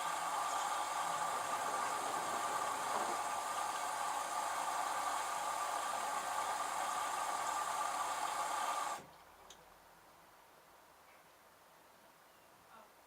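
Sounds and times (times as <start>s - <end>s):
washing machine whirring: 0.0s - 9.0s.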